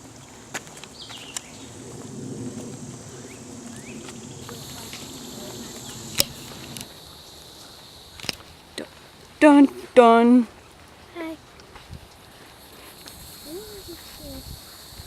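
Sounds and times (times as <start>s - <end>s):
insects buzzing: 0.0s - 11.4s, 12.2s - 15.0s
high insect buzz: 0.2s - 9.8s, 12.3s - 15.0s
sharp clicks: 5.8s - 7.0s.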